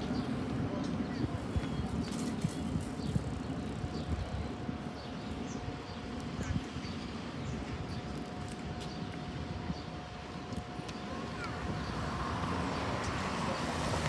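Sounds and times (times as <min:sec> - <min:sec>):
small birds chirping: 0:00.0 - 0:09.1.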